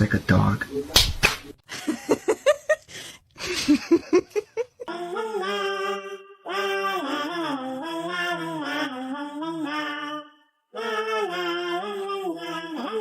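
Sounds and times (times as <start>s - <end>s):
person laughing: 1.7s - 5.0s
person singing long notes: 4.9s - 13.0s.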